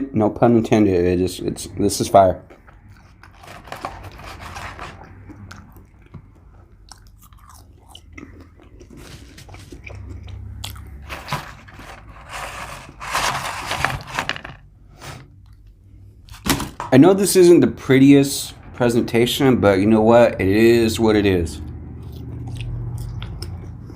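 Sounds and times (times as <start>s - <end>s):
person chewing crunchy food: 2.5s - 12.1s, 21.9s - 23.9s.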